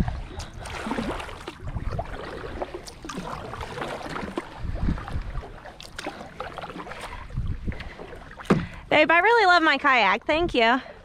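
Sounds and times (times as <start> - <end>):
paddle splashing in water: 0.0 - 9.0.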